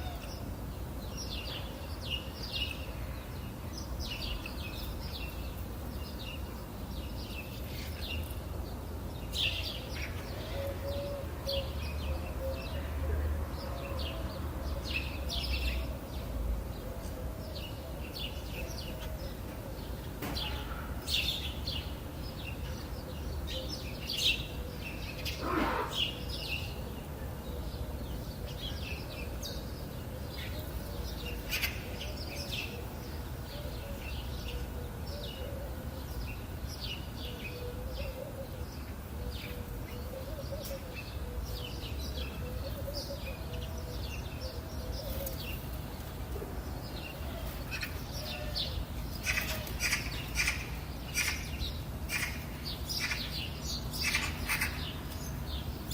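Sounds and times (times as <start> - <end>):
birds chirping: 0.0 - 55.9
steady low background hum: 0.0 - 55.9.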